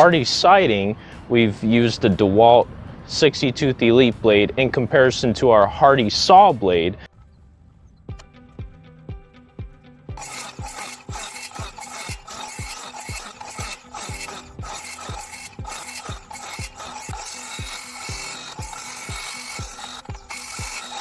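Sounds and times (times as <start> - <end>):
circular saw cutting siding: 0.0 - 0.8, 10.1 - 21.0
background music with beat: 8.1 - 10.2.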